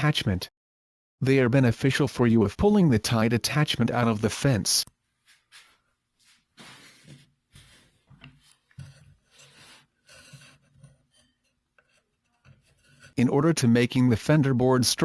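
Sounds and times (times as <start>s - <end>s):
wood scraping against wood: 5.3s - 13.2s.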